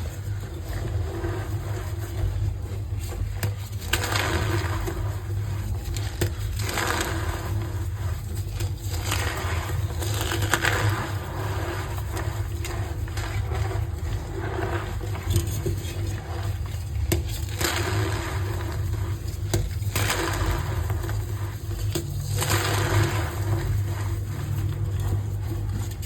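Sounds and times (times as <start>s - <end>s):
chalk crushing and crunching: 0.0s - 26.0s
steady low hum: 0.0s - 26.0s.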